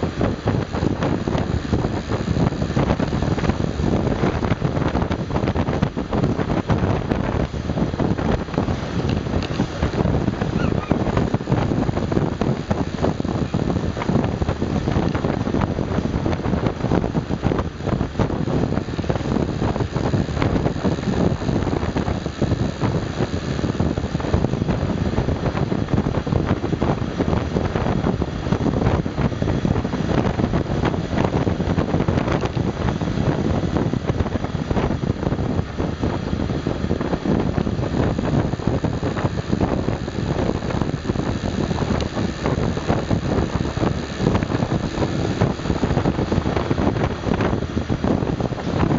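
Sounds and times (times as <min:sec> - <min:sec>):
motorbike engine running: 0:00.0 - 0:48.9
wind noise on microphone: 0:00.0 - 0:48.9.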